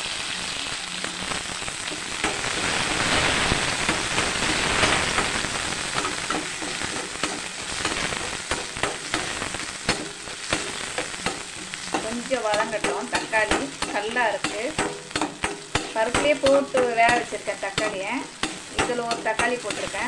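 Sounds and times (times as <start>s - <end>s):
food sizzling in hot oil: 0.0s - 20.0s
spatula scraping pan: 1.8s - 20.0s
spatula tapping pan: 5.2s - 20.0s.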